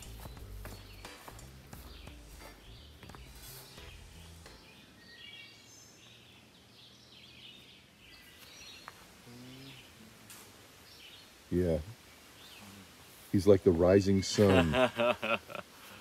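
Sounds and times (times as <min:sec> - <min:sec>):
footsteps on grass: 0:00.0 - 0:04.6
birds chirping: 0:00.0 - 0:16.0.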